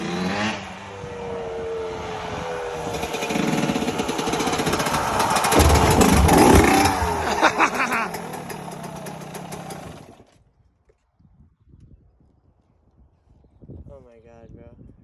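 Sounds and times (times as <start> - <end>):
motorcycle engine revving: 0.0 - 10.2
sharp knocks: 3.0 - 8.7.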